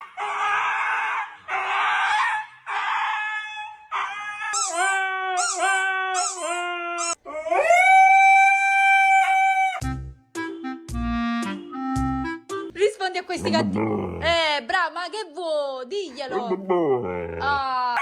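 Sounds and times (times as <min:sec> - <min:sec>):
husky howling: 0:00.1 - 0:09.9.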